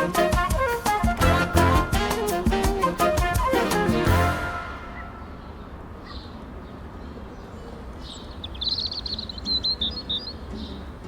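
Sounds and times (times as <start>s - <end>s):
bird chirping: 7.4s - 10.9s.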